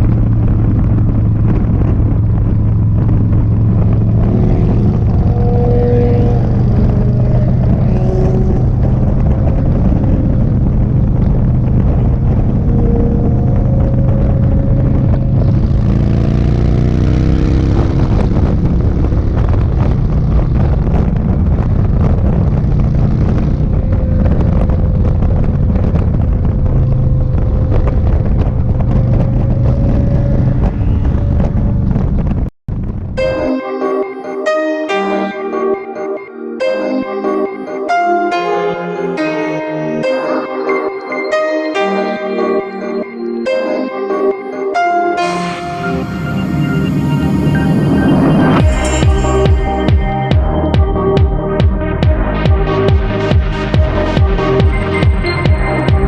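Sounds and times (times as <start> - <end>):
motorcycle engine running: 0.0 - 33.2, 46.7 - 56.0
wind rushing over microphone: 0.0 - 33.5.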